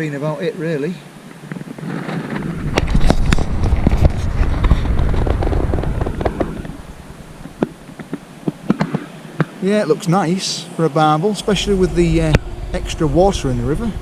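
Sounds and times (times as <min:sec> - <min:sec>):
wind gusting over microphone: 0:01.2 - 0:09.6, 0:11.4 - 0:14.0
sharp clicks and crackles: 0:01.4 - 0:09.0.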